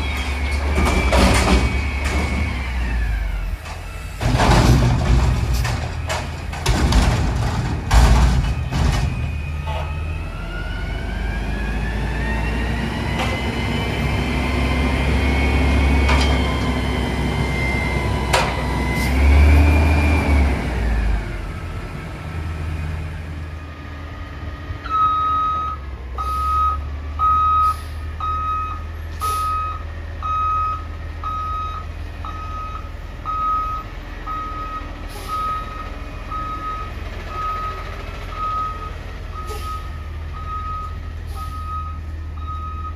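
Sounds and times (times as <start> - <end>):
garbage truck engine revving: 0.0 - 24.7
reverse alarm beeping: 24.8 - 42.9.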